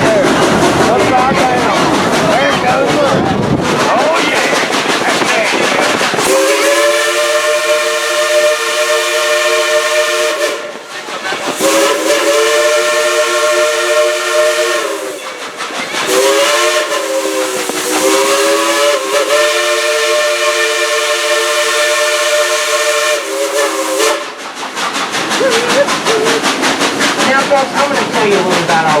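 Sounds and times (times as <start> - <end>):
steady steam hiss: 0.0 - 29.0
steam locomotive chime whistle: 6.3 - 10.8, 11.6 - 15.3, 16.1 - 24.3.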